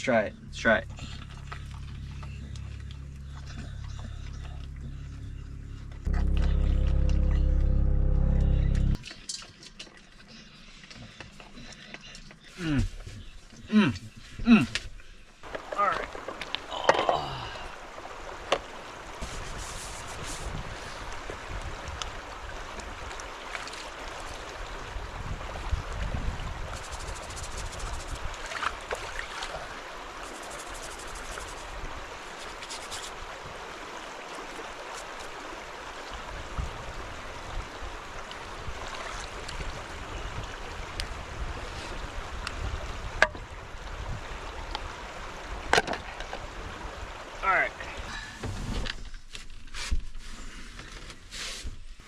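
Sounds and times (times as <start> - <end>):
rain on a roof: 15.4 - 49.1.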